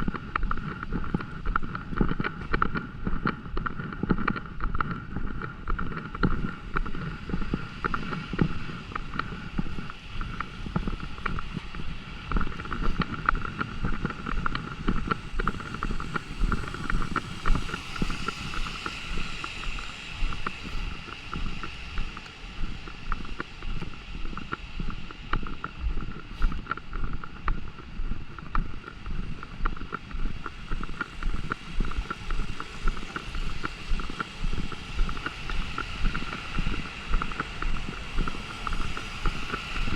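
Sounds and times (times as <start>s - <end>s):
city hum: 0.0s - 39.9s
footsteps on wet pavement: 0.1s - 39.9s
rain: 6.5s - 25.7s, 28.4s - 39.9s.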